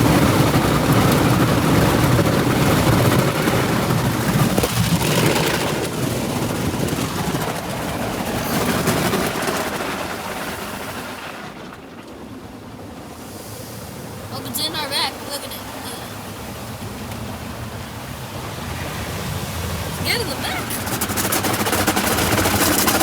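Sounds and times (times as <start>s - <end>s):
car wash machinery and water spray: 0.0s - 23.0s.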